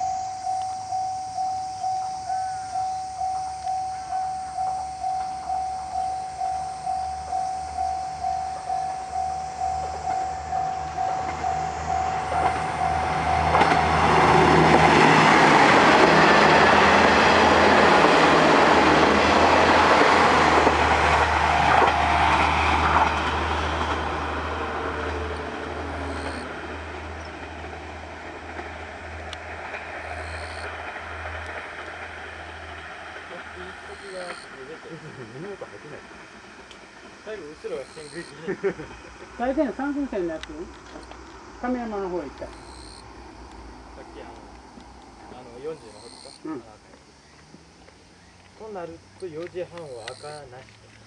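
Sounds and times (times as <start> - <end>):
level crossing warning bell: 0.0 - 27.4, 29.6 - 31.6, 33.4 - 34.6, 37.6 - 38.4
diesel railcar engines: 0.0 - 51.0
train wheels clattering: 5.0 - 41.4.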